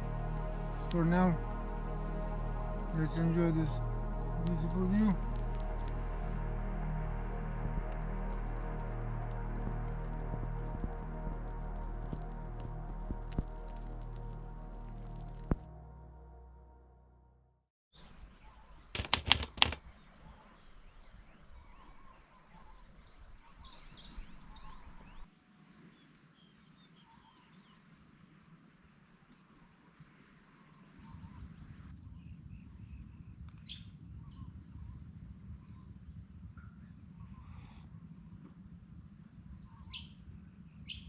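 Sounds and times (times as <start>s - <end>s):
low rumble: 0.0s - 17.6s
sharp loud clicks: 19.0s - 19.9s
birds chirping: 36.6s - 41.0s.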